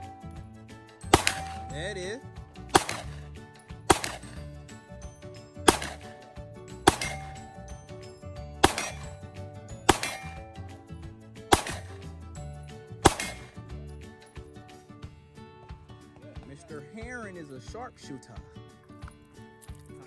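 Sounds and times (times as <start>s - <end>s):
background music: 0.0s - 20.0s
pistol shots: 1.0s - 2.0s, 2.7s - 4.4s, 5.6s - 6.2s, 6.8s - 7.8s, 8.6s - 10.6s, 11.5s - 12.1s, 13.0s - 13.6s.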